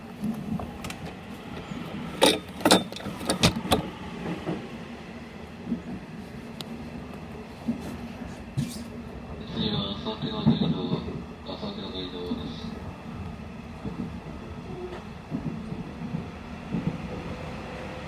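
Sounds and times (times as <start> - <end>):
train running hum: 0.0 - 18.0
wheels clacking on track: 0.2 - 4.7.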